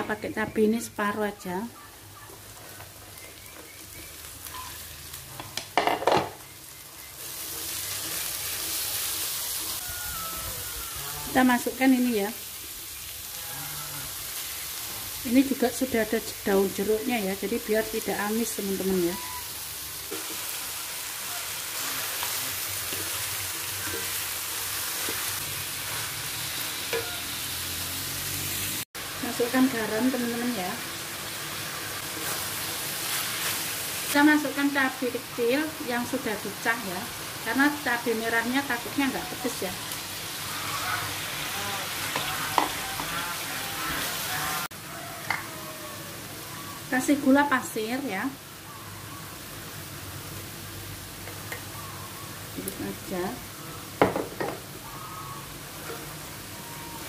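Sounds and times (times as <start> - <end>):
chillies sizzling in a wok: 0.0 - 57.0
wok clatter: 5.4 - 6.4, 20.0 - 20.7, 22.2 - 27.6
spatula scraping a pan: 21.5 - 27.5, 31.7 - 33.7.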